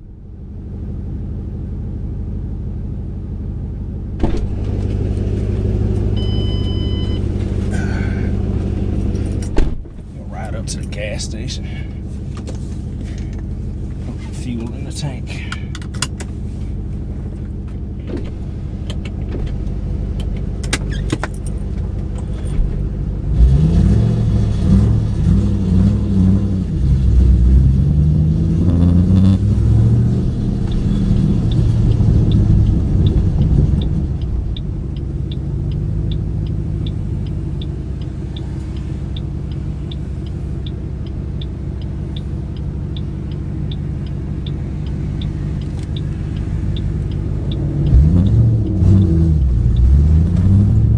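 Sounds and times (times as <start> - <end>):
car engine accelerating: 3.5 - 50.9
turn signal ticking: 28.8 - 50.9.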